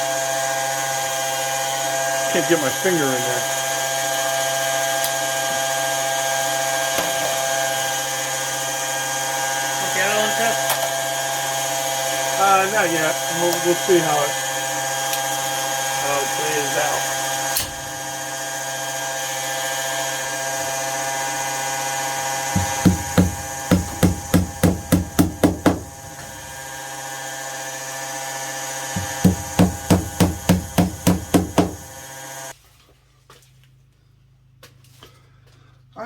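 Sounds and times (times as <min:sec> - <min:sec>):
electrical hum: 0:22.1 - 0:27.0, 0:28.8 - 0:32.5
rhythmic sawing strokes: 0:22.4 - 0:26.9, 0:28.9 - 0:32.5.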